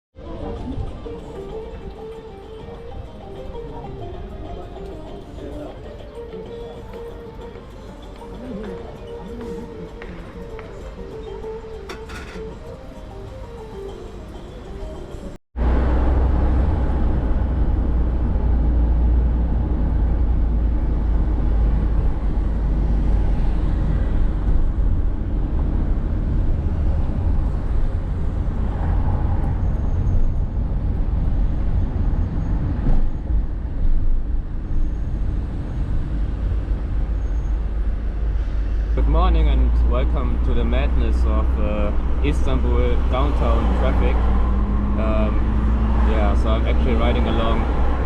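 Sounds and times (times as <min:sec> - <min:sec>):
car engine and road rumble: 0:00.2 - 0:48.0
surrounding traffic: 0:00.2 - 0:48.0.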